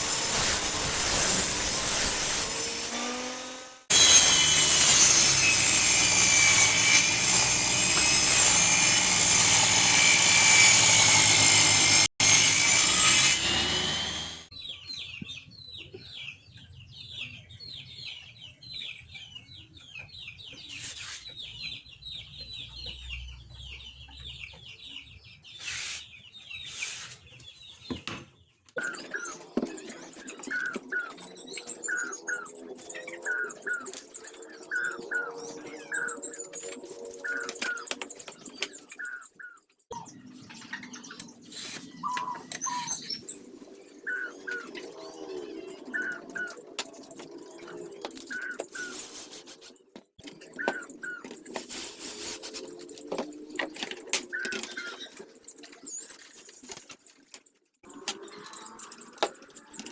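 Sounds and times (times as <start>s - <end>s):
table saw cutting wood: 0.0s - 14.5s
birds chirping: 14.5s - 59.9s.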